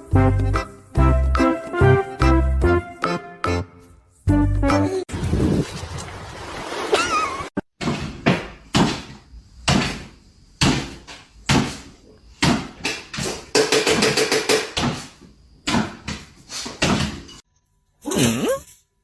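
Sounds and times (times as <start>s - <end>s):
knocking: 12.4s - 17.3s.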